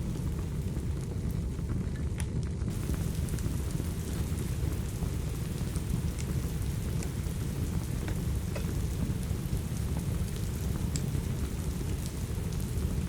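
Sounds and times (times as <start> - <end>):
steady rain: 0.0 - 13.0
wood fire crackling: 0.0 - 13.0.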